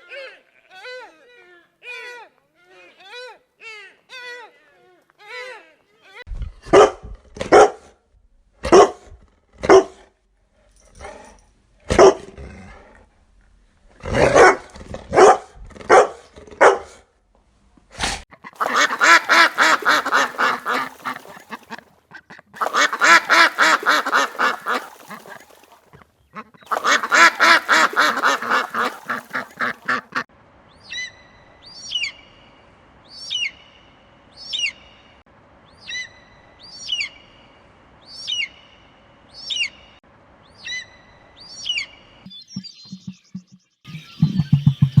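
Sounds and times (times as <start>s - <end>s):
long pulsing animal calls: 18.6s - 21.8s, 22.6s - 25.7s, 26.7s - 30.0s
high chirping calls sweeping down: 42.3s - 45.0s.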